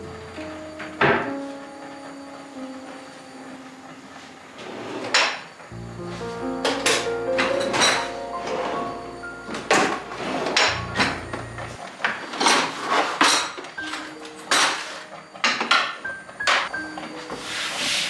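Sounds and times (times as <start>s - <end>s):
dishes and utensils clinking: 12.1s - 16.7s.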